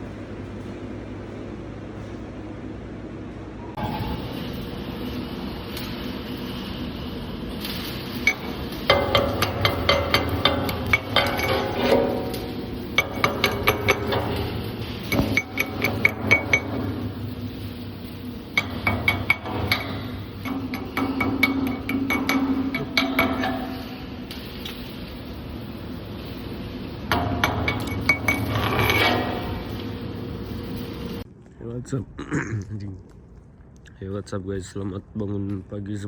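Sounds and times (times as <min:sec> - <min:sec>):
low machine hum: 0:00.0 - 0:36.0
hammer blows on sheet metal: 0:08.0 - 0:24.3, 0:27.1 - 0:30.8.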